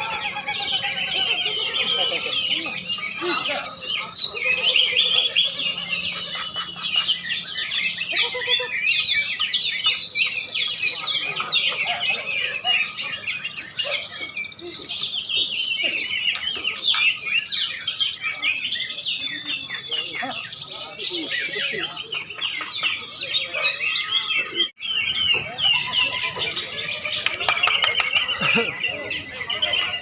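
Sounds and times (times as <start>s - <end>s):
songbirds chorus: 0.0s - 30.0s.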